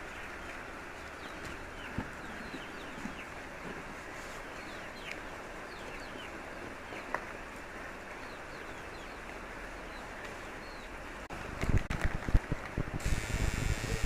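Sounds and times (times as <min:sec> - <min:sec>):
small birds chirping: 0:00.0 - 0:03.4, 0:04.2 - 0:07.2, 0:08.2 - 0:11.0
background hiss: 0:13.0 - 0:14.0.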